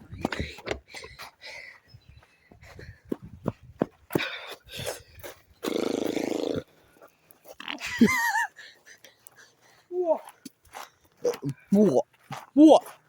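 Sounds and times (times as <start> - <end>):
footsteps on forest trail: 0.0 - 13.0
person growling: 5.6 - 6.7.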